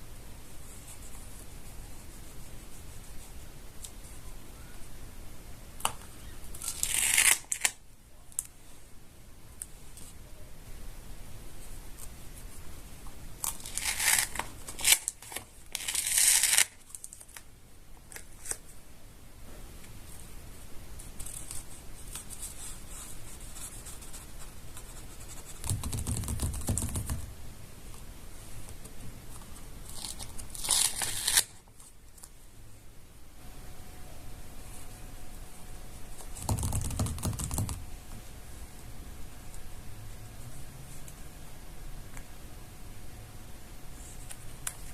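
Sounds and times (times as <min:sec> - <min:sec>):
paper tearing and crinkling: 0:06.6 - 0:07.8, 0:13.4 - 0:17.4, 0:29.8 - 0:31.6.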